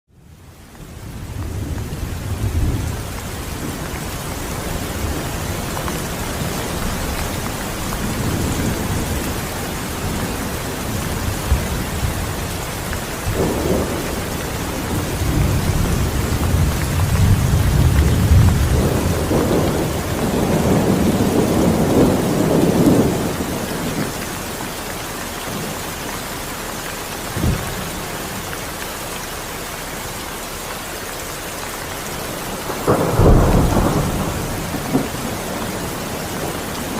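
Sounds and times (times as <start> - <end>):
steady rain falling: 0.1 - 36.9
thunder rumbling: 0.9 - 24.7, 27.3 - 28.5, 32.2 - 36.9
sharp thunder clap: 13.3 - 24.1, 32.6 - 36.9.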